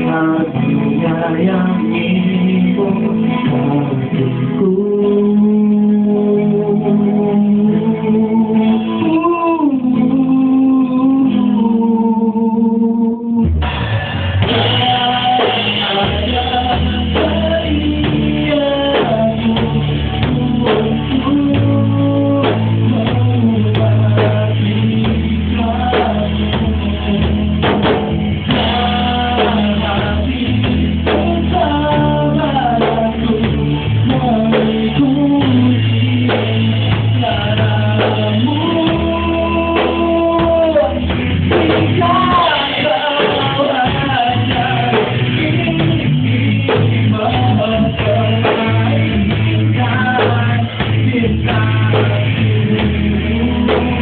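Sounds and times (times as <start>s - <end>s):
pop-rock band playing: 0.0s - 54.0s.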